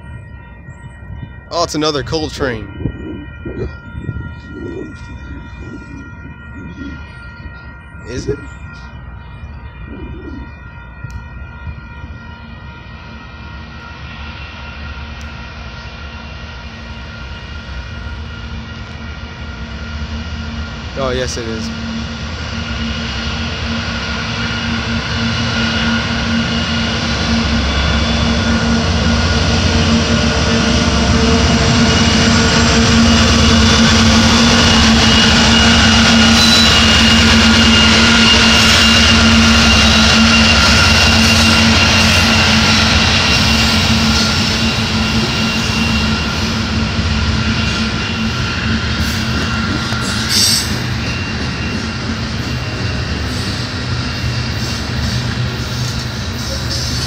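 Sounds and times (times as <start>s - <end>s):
diesel locomotive engine passing: 0.0s - 57.0s
hopper cars rolling on rails: 15.0s - 57.0s.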